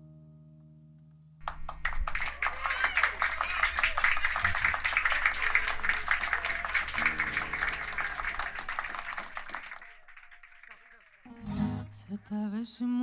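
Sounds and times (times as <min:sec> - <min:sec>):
group clapping: 0:01.4 - 0:11.8.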